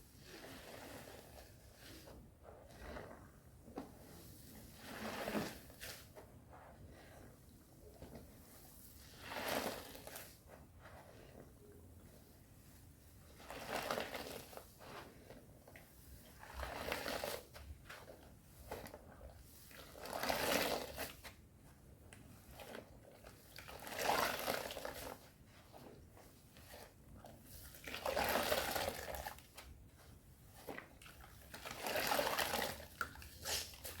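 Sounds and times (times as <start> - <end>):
soap foam squelching in hands: 13.3 - 21.3, 22.3 - 34.0.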